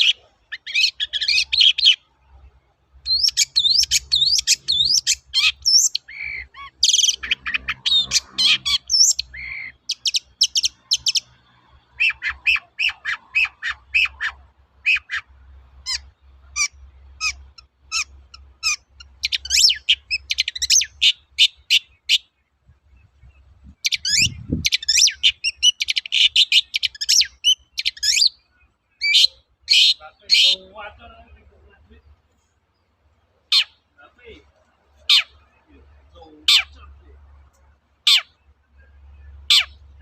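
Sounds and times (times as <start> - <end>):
shrike singing: 3.0 - 22.4, 23.0 - 32.2.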